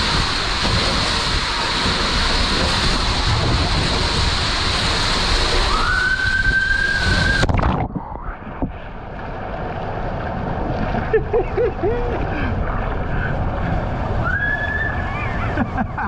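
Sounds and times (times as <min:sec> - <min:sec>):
water rushing down a slide: 0:00.0 - 0:16.0
high held squeal: 0:05.7 - 0:07.5.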